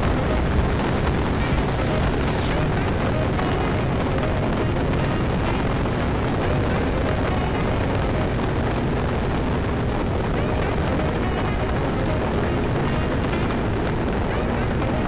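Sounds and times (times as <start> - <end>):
scooter engine running: 0.0 - 7.8
wind rumble on microphone: 0.0 - 15.0.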